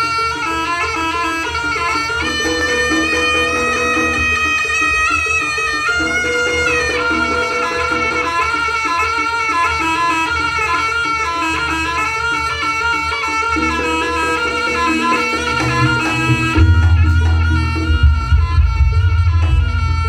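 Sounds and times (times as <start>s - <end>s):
reed shawm melody: 0.0s - 20.0s
gong: 6.0s - 9.0s, 14.2s - 20.0s
low drum beats: 14.4s - 20.0s.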